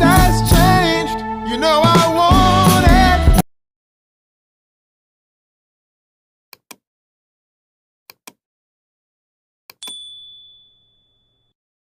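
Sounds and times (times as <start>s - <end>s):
high bell-like ding: 9.8s - 11.6s.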